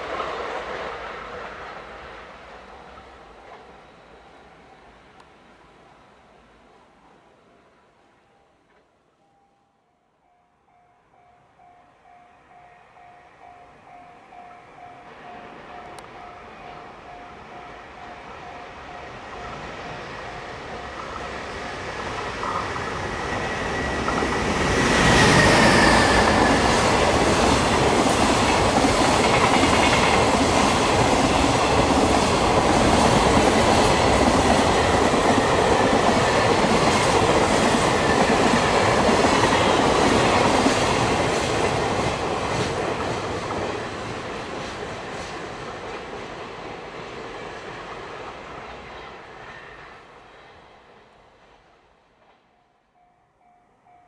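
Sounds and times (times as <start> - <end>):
locomotive whine: 11.4 - 41.9.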